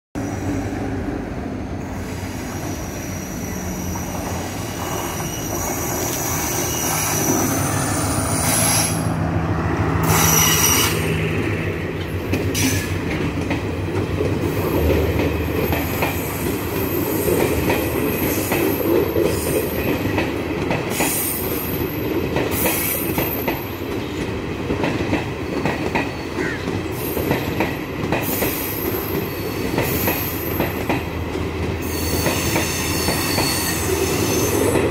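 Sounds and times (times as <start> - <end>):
train wheel squeal: 0.2 - 0.7, 1.8 - 9.1, 10.0 - 11.1, 20.9 - 21.8, 26.0 - 30.9, 31.8 - 34.9
rumble of train coaches: 0.2 - 34.9.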